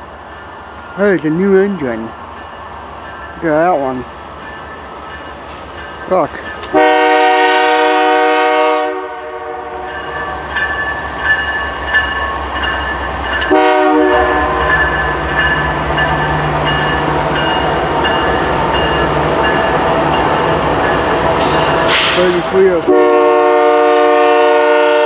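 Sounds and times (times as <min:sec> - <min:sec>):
train engines and wheels rumbling: 0:00.0 - 0:25.0
locomotive air horn: 0:06.7 - 0:10.0, 0:13.4 - 0:14.8, 0:21.9 - 0:25.0.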